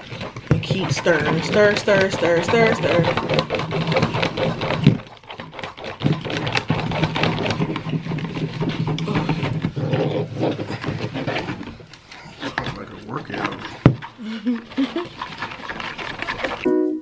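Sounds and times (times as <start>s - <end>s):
sticky clicks of slime stirring: 0.0s - 9.3s.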